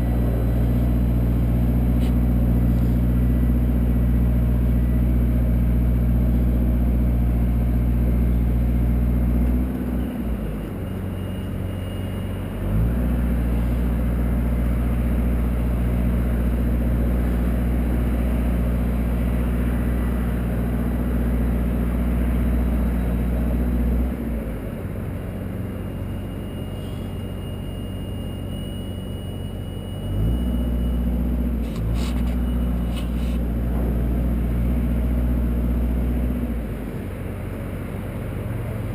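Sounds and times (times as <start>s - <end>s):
hoist engine running: 25.1s - 37.0s.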